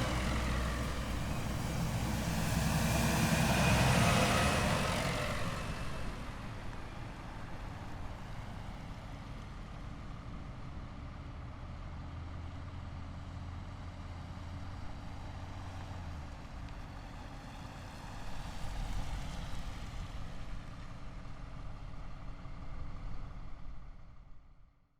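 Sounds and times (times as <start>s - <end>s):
low engine drone: 0.0s - 6.6s
heavy vehicles driving past: 0.0s - 9.0s.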